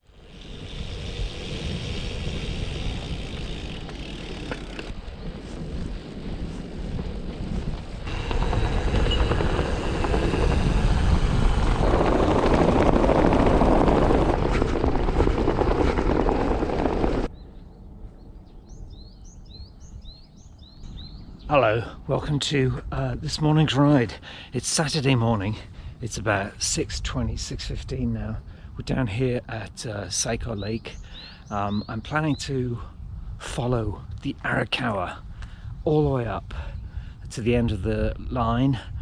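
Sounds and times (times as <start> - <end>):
birds chirping: 0.0 - 5.6, 17.3 - 22.1, 30.1 - 32.5
wind buffeting microphone: 0.0 - 24.5, 30.3 - 39.0.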